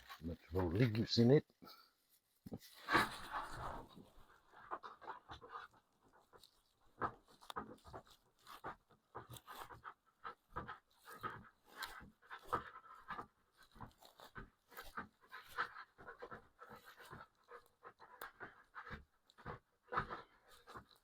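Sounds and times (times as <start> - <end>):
faint quick panting: 2.7 - 21.0.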